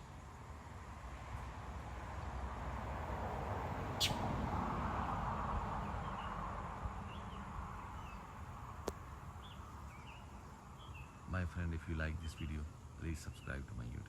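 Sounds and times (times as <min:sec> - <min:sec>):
low rumble and hiss: 0:00.0 - 0:14.0
small bird chirping: 0:03.7 - 0:04.3, 0:07.1 - 0:11.2.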